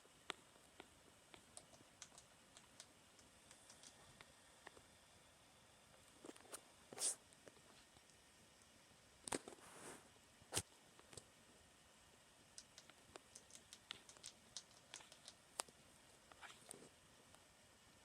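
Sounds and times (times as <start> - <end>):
hamster teeth crunching food: 0.3 - 4.8, 12.5 - 15.8.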